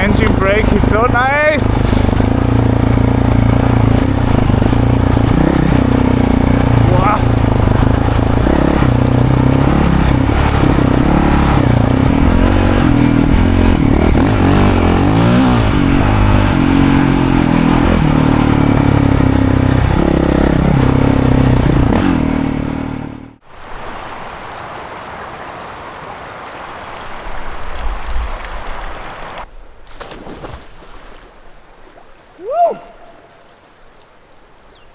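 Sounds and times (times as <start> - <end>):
steady rushing noise: 0.0 - 20.8
dirt bike engine revving: 0.0 - 23.4.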